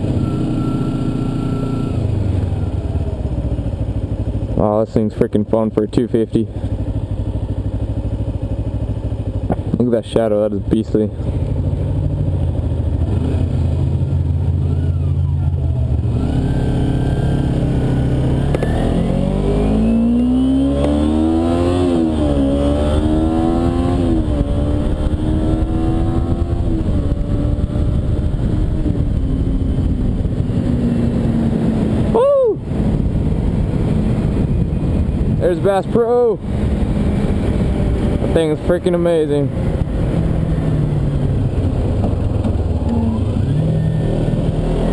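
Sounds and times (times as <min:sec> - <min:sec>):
motorcycle engine revving: 0:00.0 - 0:44.9
wind noise: 0:18.6 - 0:44.9.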